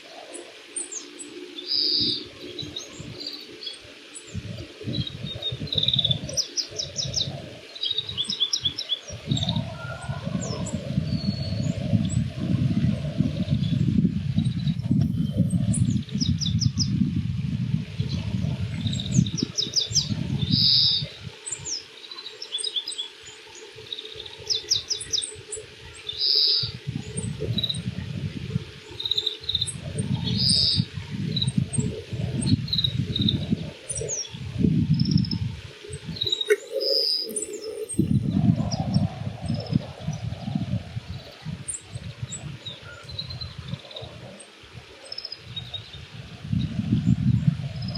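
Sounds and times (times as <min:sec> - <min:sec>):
bird twittering song: 0:00.0 - 0:17.0, 0:18.0 - 0:27.9, 0:28.8 - 0:47.9.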